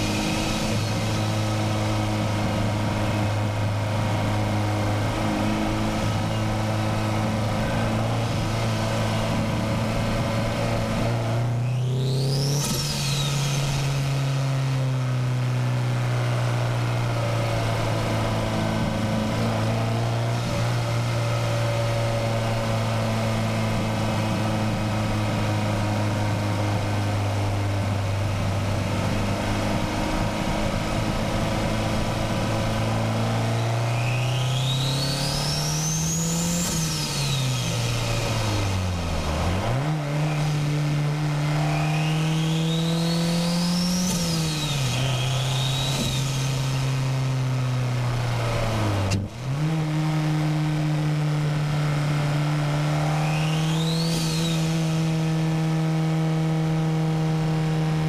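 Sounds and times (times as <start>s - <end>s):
car engine running: 0.0s - 58.0s
turbo whistle: 53.1s - 54.8s.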